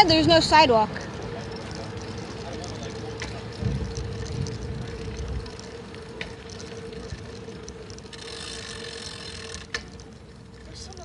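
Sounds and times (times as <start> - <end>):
wind buffeting microphone: 0.0 - 2.2, 3.2 - 8.2
bicycle tyre noise: 0.0 - 11.0
sharp clicks or rattles: 0.8 - 10.2.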